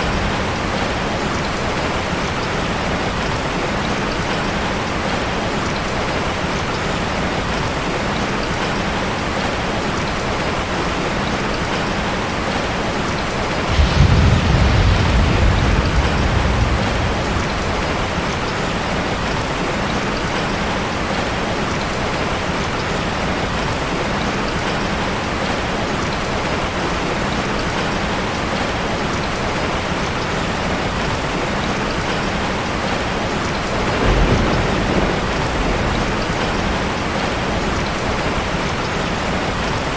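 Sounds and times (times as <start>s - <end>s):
heavy rain falling: 0.0s - 39.9s
thunder rumbling: 13.7s - 20.5s, 33.6s - 39.6s.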